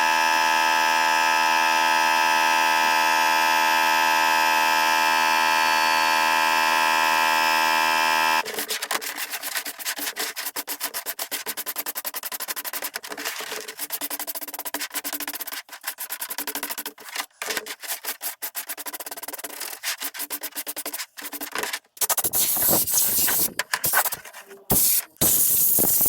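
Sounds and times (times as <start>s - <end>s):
brush scrubbing: 8.4s - 26.0s
hissing spray bursts: 22.1s - 26.0s.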